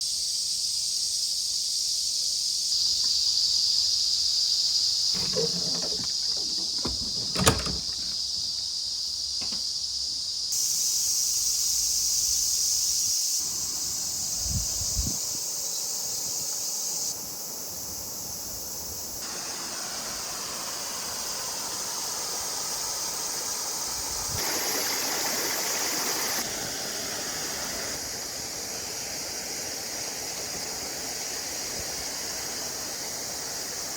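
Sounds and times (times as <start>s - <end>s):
mountain stream running: 5.2s - 8.0s, 19.2s - 33.9s.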